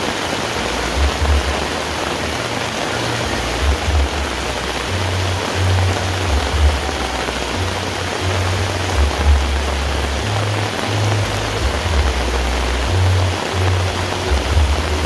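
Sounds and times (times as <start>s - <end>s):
heavy rain: 0.0s - 15.0s
low rumble: 0.6s - 15.0s.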